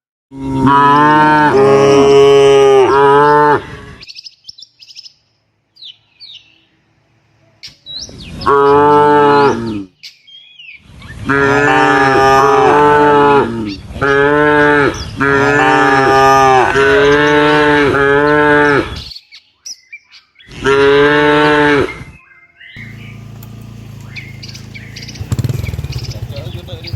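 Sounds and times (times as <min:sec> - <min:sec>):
cow mooing loudly: 0:00.3 - 0:04.0, 0:08.4 - 0:09.9, 0:11.2 - 0:19.0, 0:20.6 - 0:22.0.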